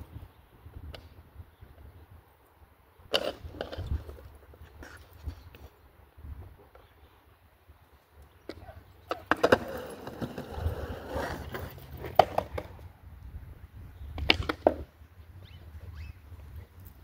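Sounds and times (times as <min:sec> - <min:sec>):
skateboard wheels rolling on concrete: 0:00.0 - 0:17.0
skateboard deck clacking: 0:08.5 - 0:12.9, 0:14.1 - 0:15.0.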